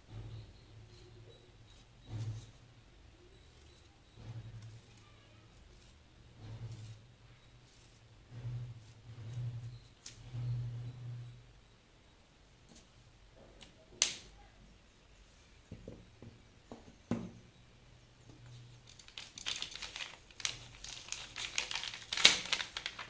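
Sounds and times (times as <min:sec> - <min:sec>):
thin material crinkling: 0:18.7 - 0:23.0.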